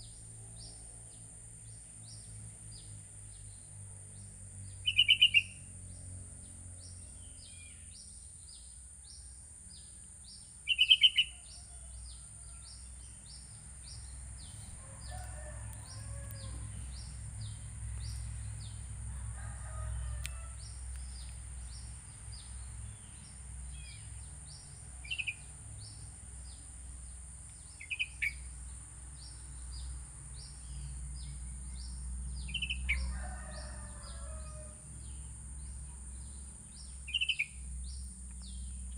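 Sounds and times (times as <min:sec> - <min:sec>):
distant rooster crowing: 0:10.8 - 0:21.3, 0:32.4 - 0:35.2
faint high ticks: 0:20.2 - 0:22.4.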